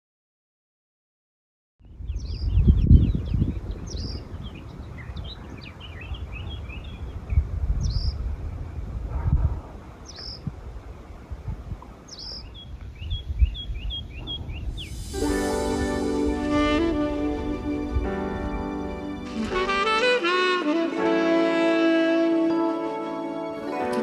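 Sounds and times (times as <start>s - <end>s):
small birds chirping: 1.9s - 8.7s, 10.0s - 10.5s, 11.8s - 15.2s.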